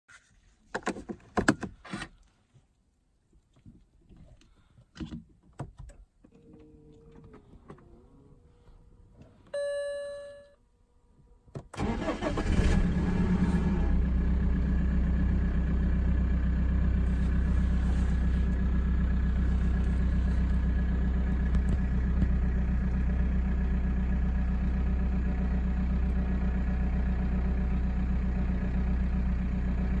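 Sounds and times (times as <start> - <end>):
dashboard chime: 9.6 - 10.6
diesel engine starting and idling: 11.7 - 30.0.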